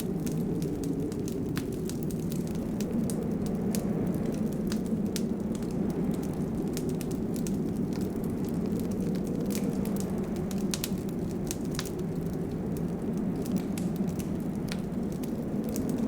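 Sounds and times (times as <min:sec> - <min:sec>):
low fire rumble: 0:00.0 - 0:16.0
wood fire crackling: 0:00.0 - 0:16.0.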